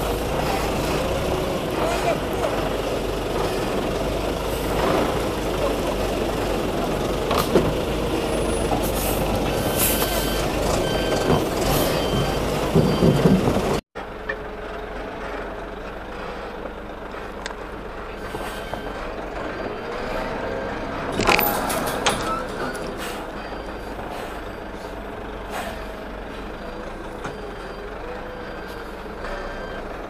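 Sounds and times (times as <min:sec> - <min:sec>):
truck engine running: 0:00.0 - 0:30.0
reversing alarm beeping: 0:08.2 - 0:13.4, 0:18.5 - 0:30.0.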